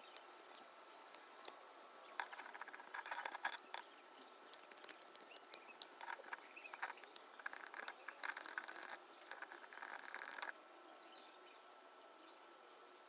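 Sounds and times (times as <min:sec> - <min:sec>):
light clicks and scratchy rattling: 0:02.2 - 0:03.9, 0:04.5 - 0:10.5.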